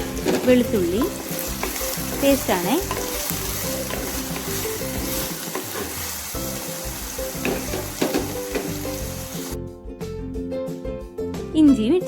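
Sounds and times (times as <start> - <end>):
shallots sizzling in hot oil: 0.0 - 9.6
soft background music: 0.0 - 12.0
spoon scraping and tapping pan: 0.1 - 6.0, 7.3 - 9.0.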